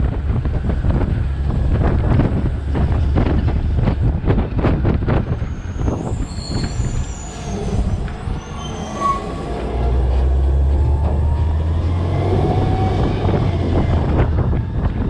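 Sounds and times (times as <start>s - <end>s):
garbage truck rumble: 0.0s - 15.0s
thin high squeal: 5.4s - 9.9s.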